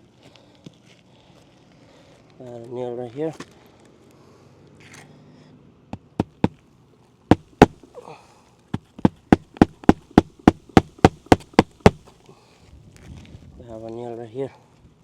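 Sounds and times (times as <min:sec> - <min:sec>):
hammer driving roofing nails: 0:06.0 - 0:06.6, 0:07.3 - 0:07.8, 0:08.8 - 0:12.0.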